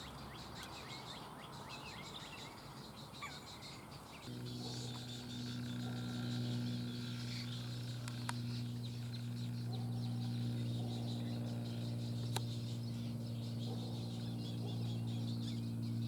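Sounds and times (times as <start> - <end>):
small birds chirping: 0.0 - 16.0
loud low hum: 4.3 - 16.0.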